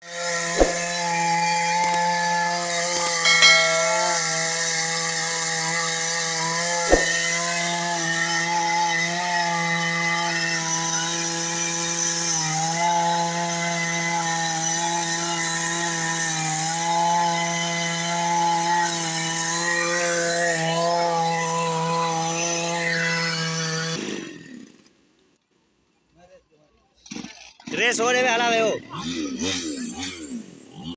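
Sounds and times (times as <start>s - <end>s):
chainsaw cutting tree: 0.0s - 3.6s, 4.5s - 24.8s
sharp knocks: 3.2s - 4.4s, 6.9s - 7.2s.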